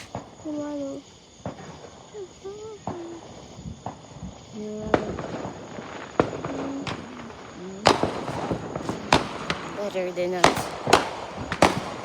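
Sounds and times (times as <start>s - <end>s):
small fireworks cracking: 0.0s - 12.0s.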